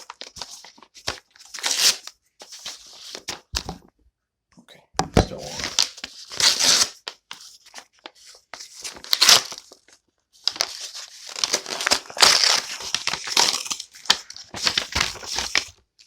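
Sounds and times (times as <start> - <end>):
packaging crinkling and tearing: 7.7 - 15.8.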